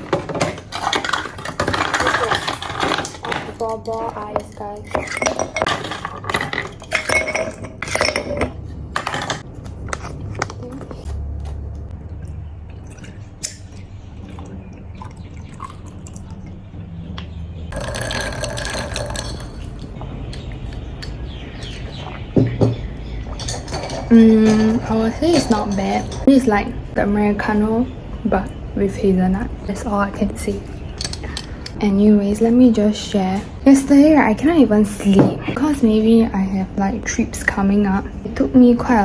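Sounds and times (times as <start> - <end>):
ice clinking into a glass: 17.8 - 19.7.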